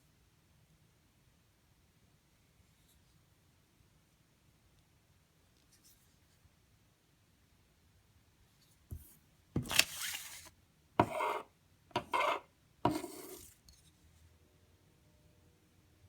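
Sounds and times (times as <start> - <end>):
knife blade scraping: 11.0 - 11.4, 12.0 - 13.5.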